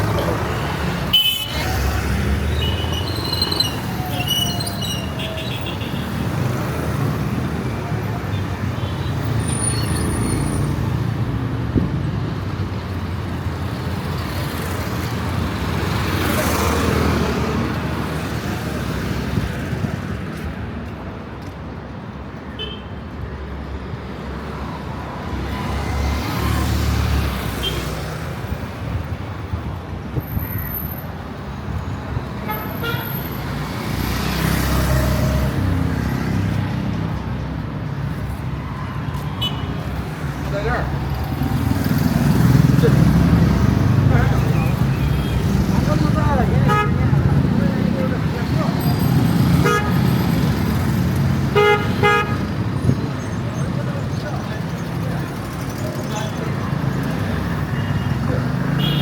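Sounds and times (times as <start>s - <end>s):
vehicles passing: 0.0s - 59.0s
car horn toots: 49.6s - 50.0s, 51.6s - 52.4s, 58.8s - 59.0s.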